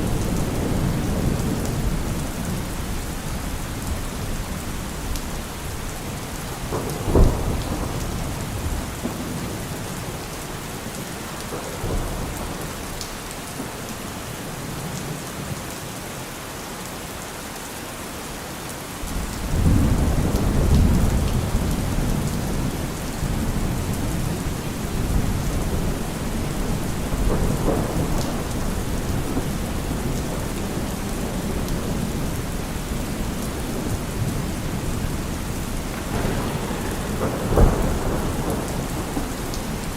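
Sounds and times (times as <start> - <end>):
low thunder rumble: 0.0 - 12.9, 19.0 - 39.9
steady rain falling: 0.0 - 39.9
thunder crack: 6.6 - 10.2, 19.1 - 39.9.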